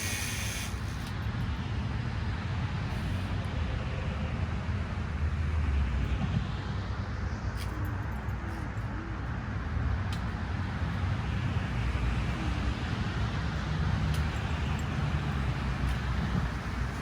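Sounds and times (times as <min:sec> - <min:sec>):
even hiss: 0:00.0 - 0:01.0.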